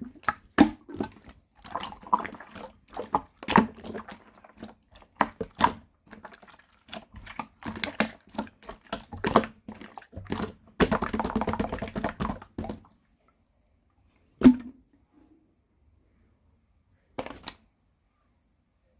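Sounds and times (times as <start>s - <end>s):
slime squished by hand: 0.0s - 12.8s.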